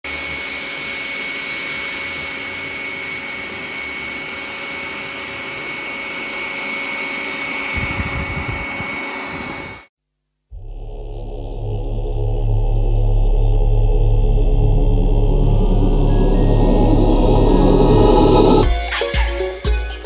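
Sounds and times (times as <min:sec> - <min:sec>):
robot vacuum running: 0:00.1 - 0:09.8.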